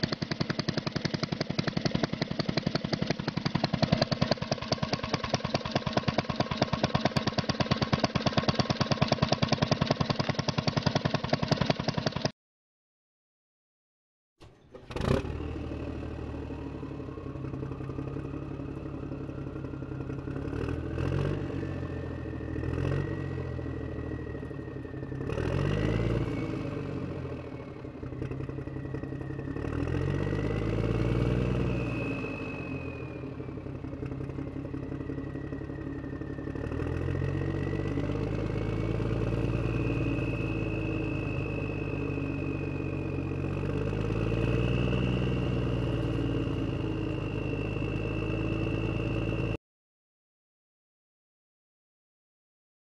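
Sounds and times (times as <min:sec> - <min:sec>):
clunks: 0:14.4 - 0:15.1
truck engine revving: 0:14.6 - 0:49.6.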